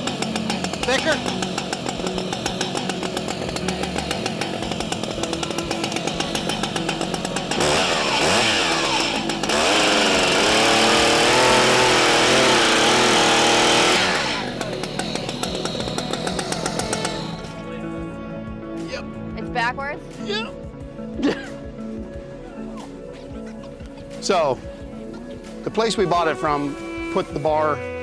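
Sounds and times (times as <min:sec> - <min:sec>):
chainsaw idling and revving: 0:00.0 - 0:17.8.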